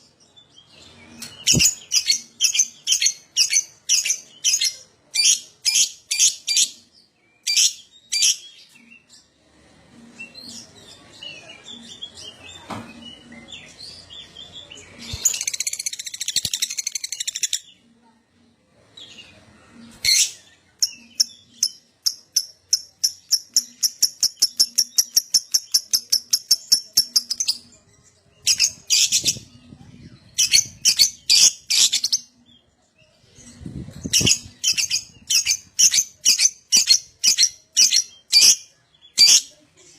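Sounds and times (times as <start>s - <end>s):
lovebird chirping and chattering: 1.2s - 6.8s, 7.4s - 8.5s, 15.0s - 17.7s, 20.0s - 27.7s, 28.4s - 29.6s, 30.2s - 32.3s, 33.3s - 39.6s.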